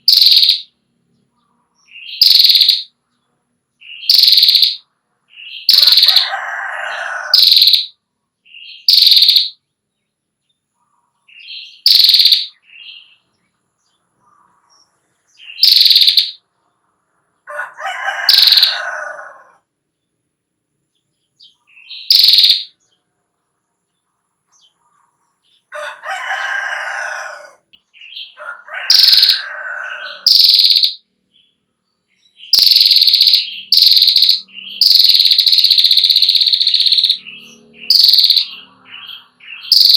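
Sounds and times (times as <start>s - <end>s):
bird buzzy trill: 0.0s - 0.7s, 2.1s - 2.9s, 3.9s - 4.8s, 5.5s - 8.0s, 8.8s - 9.6s, 11.7s - 12.6s, 15.5s - 16.4s, 18.1s - 19.2s, 21.9s - 22.7s, 28.8s - 31.0s, 32.5s - 39.9s.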